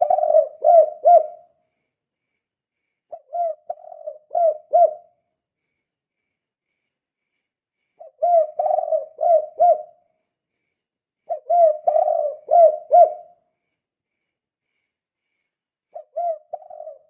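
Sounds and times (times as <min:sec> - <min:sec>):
dove cooing: 0:00.0 - 0:01.5, 0:03.1 - 0:05.2, 0:08.0 - 0:10.0, 0:11.3 - 0:13.4, 0:15.9 - 0:17.0.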